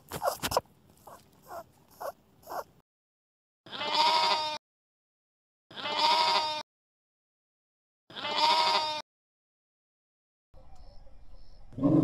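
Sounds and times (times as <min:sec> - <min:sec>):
sheep bleating: 0:03.7 - 0:04.6, 0:05.7 - 0:06.6, 0:08.1 - 0:09.0.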